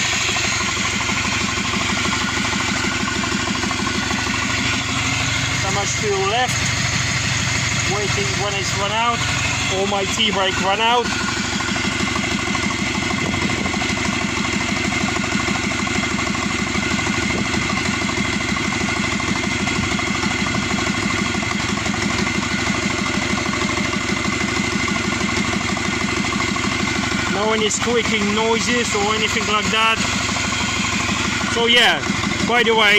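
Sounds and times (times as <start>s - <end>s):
car engine idling: 0.0s - 32.9s
steady high whine: 4.2s - 14.5s, 20.6s - 32.9s.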